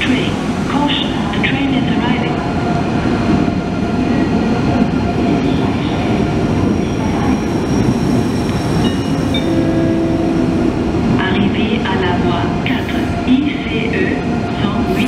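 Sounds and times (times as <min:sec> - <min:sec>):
train wheels rumbling on rail: 0:00.0 - 0:15.0
high squeal: 0:06.5 - 0:09.6.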